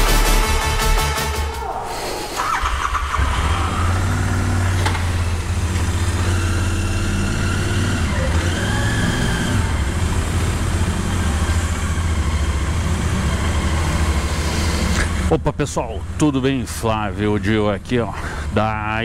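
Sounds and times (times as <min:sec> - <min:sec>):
motorcycle engine idling: 0:02.5 - 0:08.3, 0:09.7 - 0:15.4.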